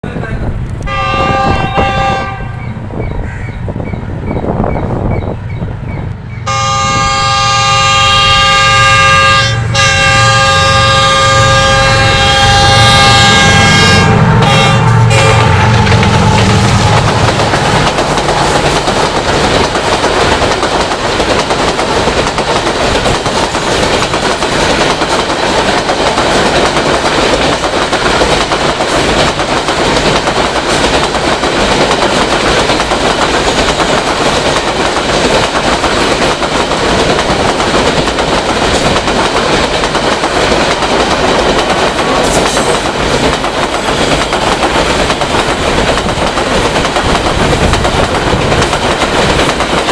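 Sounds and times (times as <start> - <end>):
train wheels clattering on rails: 0.1 - 49.9.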